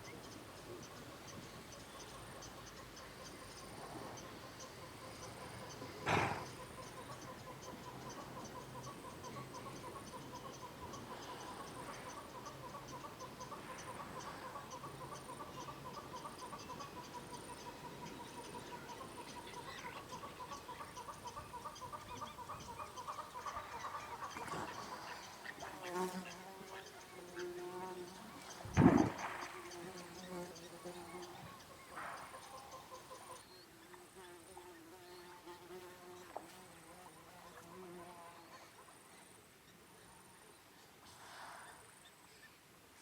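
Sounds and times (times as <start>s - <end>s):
animals calling in chorus: 2.0s - 33.4s.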